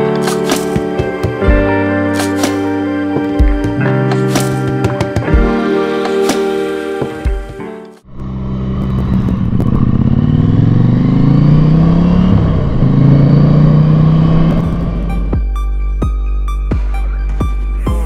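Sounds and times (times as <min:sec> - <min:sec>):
motorcycle engine accelerating: 0:08.0 - 0:15.6.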